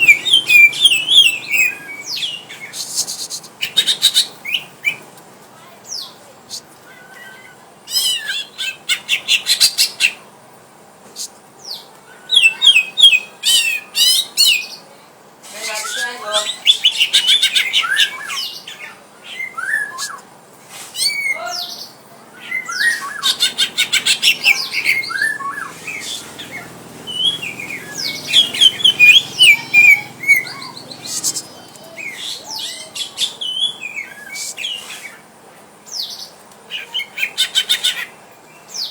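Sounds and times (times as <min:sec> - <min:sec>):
birds chattering trills: 0:00.0 - 0:05.2, 0:21.0 - 0:38.9
whistled bird chirps: 0:19.4 - 0:20.2, 0:22.4 - 0:23.4, 0:24.0 - 0:34.8.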